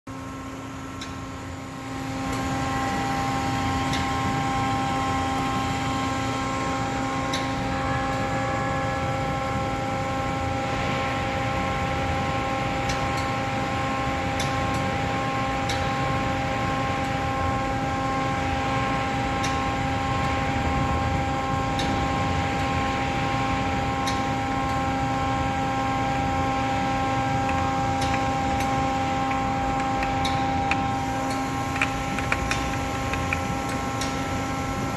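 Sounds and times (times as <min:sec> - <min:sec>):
machine hum with held tones: 0:00.1 - 0:34.9
sharp ticks: 0:29.3 - 0:34.2.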